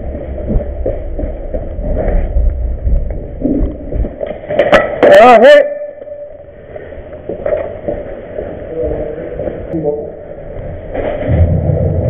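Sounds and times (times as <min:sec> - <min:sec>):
low wind rumble on microphone: 0:00.0 - 0:04.2, 0:10.5 - 0:12.0.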